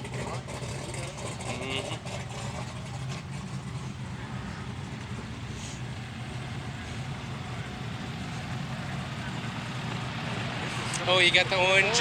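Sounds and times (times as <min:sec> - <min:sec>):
low engine rumble: 0:00.0 - 0:12.0
outdoor background noise: 0:00.0 - 0:12.0.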